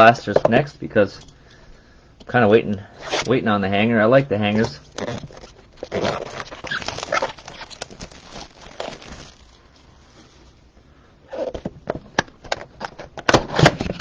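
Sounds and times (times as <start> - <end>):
packaging crinkling and clicking: 4.6 - 9.9.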